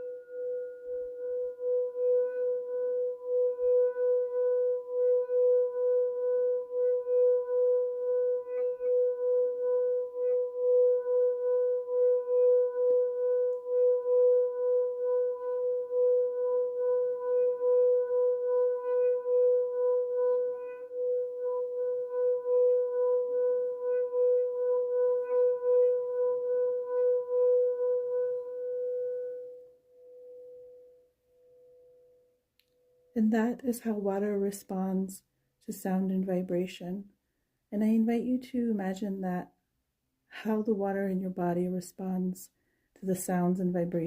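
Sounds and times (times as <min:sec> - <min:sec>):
singing bowl tone: 0:00.0 - 0:33.4.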